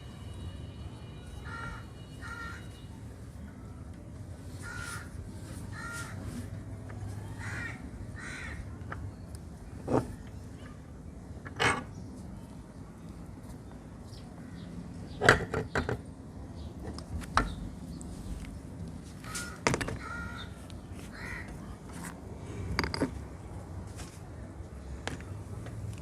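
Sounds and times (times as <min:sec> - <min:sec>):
low background noise: 0:00.0 - 0:26.0
harsh cawing calls: 0:01.4 - 0:02.8, 0:04.6 - 0:06.3, 0:07.3 - 0:08.7, 0:19.2 - 0:21.5.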